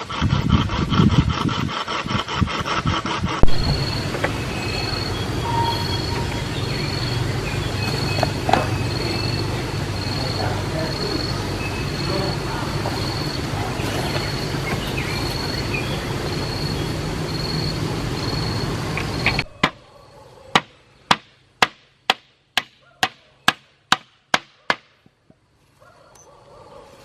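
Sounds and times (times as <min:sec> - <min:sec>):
steady noise: 0:00.0 - 0:19.6
hammer striking wood: 0:20.5 - 0:25.2.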